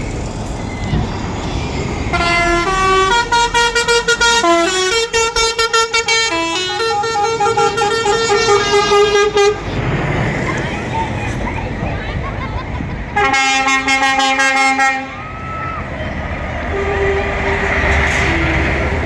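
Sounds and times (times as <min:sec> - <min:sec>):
musical truck horn playing tune: 0:02.1 - 0:09.6, 0:13.2 - 0:15.2, 0:16.5 - 0:19.0.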